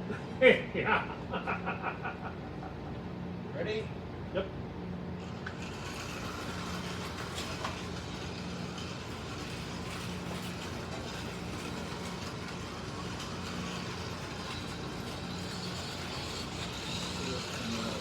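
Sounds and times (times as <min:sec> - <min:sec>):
slot car motors whirring: 0:05.1 - 0:18.0.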